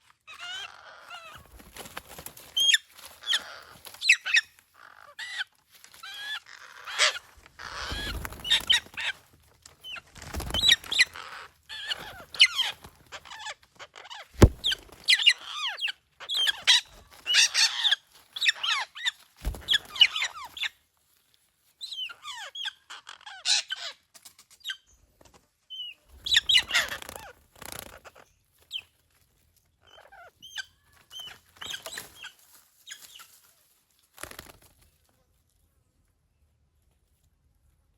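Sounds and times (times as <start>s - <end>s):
birds calling: 14.1s - 17.8s.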